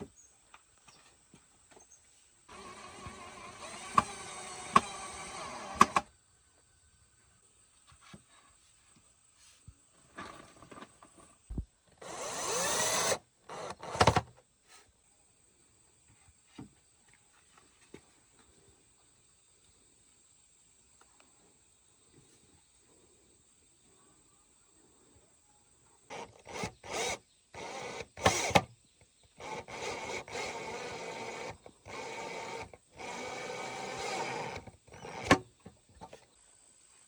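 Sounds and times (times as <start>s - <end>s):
small electric power tool running: 2.5s - 6.1s, 12.0s - 14.2s, 26.1s - 28.7s, 29.4s - 35.4s.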